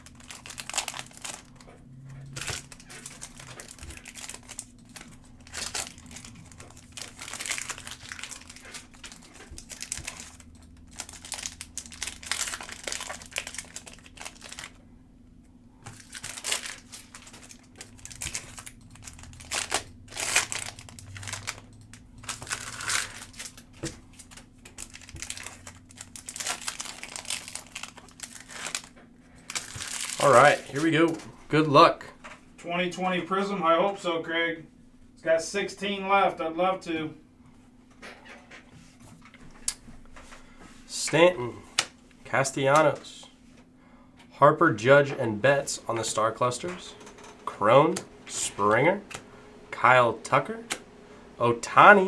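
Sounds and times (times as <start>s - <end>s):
plastic wrapping crinkling: 0.0s - 14.8s, 15.8s - 31.3s.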